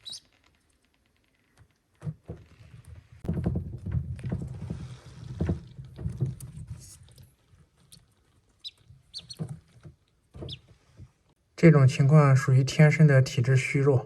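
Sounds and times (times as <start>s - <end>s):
duckling peeping: 0.0s - 0.3s, 7.9s - 9.8s, 10.4s - 10.8s.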